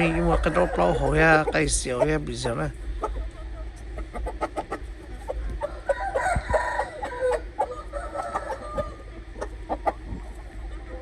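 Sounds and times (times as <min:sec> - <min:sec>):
rooster crowing: 0:00.0 - 0:01.3, 0:05.6 - 0:09.1
chicken clucking: 0:00.0 - 0:11.0.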